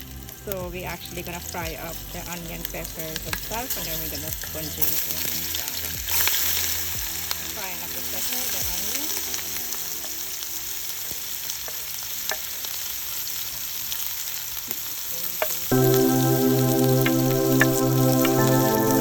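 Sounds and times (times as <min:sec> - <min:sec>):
music: 0:00.0 - 0:11.2, 0:15.7 - 0:19.0
vegetables sizzling in oil: 0:00.0 - 0:19.0.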